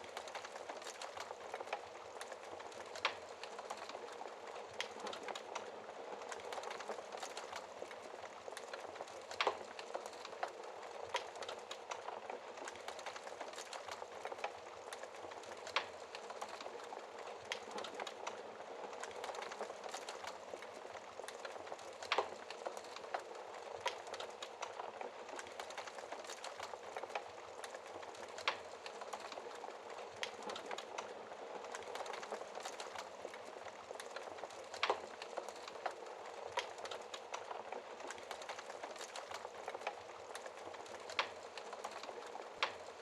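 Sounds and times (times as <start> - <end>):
fire hissing and crackling: 0.0 - 43.0.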